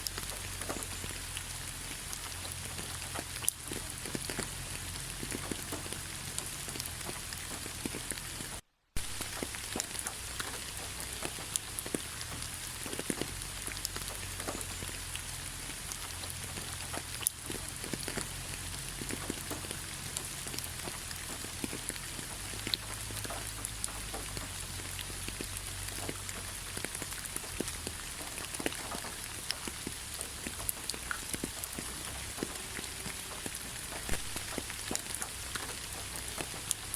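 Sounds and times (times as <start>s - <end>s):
rain patter on road: 0.0s - 36.9s.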